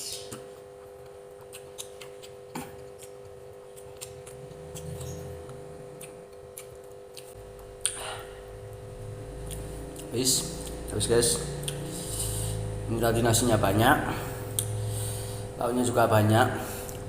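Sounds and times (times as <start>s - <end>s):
person eating with clicks and smacks: 0.0s - 12.6s, 14.3s - 15.0s
electrical hum: 0.0s - 17.0s.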